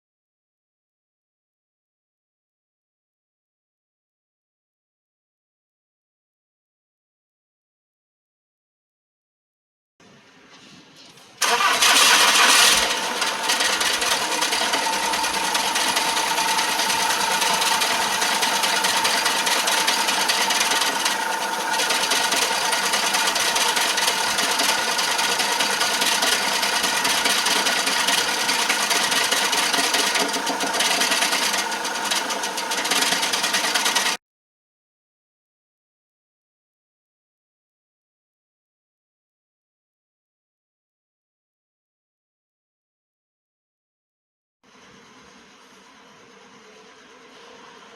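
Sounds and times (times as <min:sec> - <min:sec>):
diesel engine starting and idling: 0:11.4 - 0:34.2.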